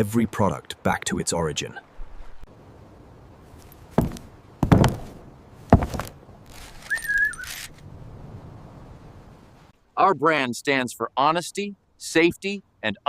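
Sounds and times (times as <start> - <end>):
thuds: 4.0 - 6.2
short wavering whistle: 6.8 - 7.6.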